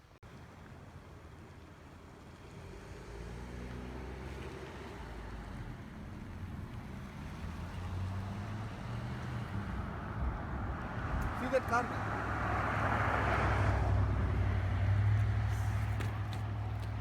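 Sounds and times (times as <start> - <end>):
car engine humming: 3.6 - 17.0.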